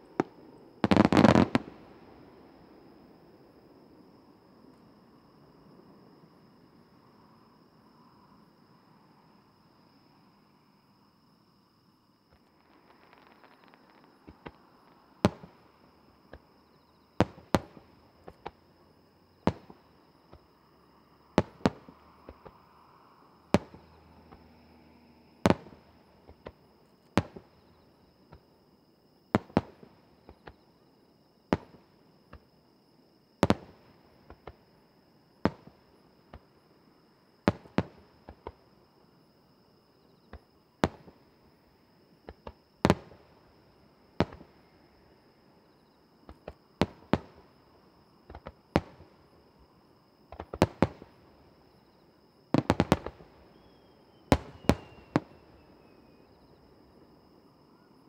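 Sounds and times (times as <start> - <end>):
firework shells bursting: 0.2 - 1.7, 52.6 - 55.4.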